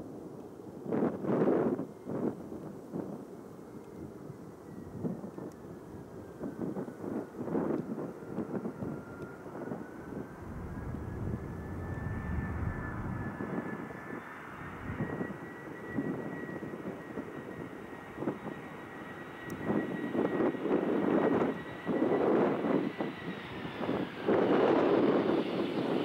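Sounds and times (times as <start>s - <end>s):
jet engine rumble and whine: 0.0s - 26.0s
wind gusts on microphone: 6.1s - 18.6s.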